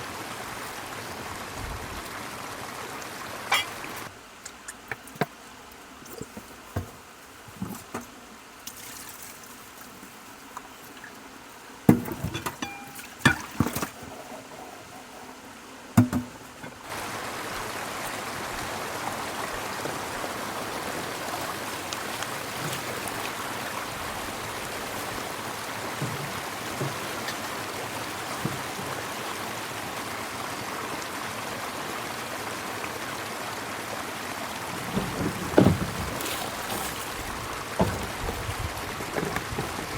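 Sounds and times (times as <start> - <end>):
river rushing: 0.0 - 4.2, 16.8 - 39.9.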